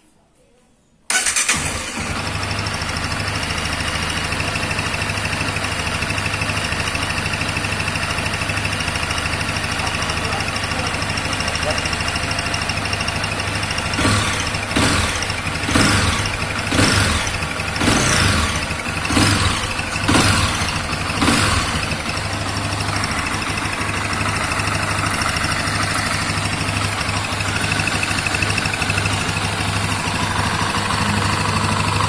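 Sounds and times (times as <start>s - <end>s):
motorcycle engine revving and idling: 1.1s - 32.0s.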